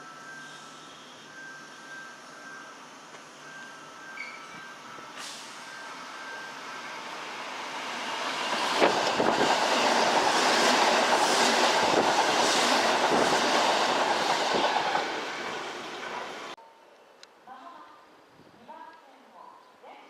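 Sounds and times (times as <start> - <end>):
electric train passing: 0.0 - 16.6.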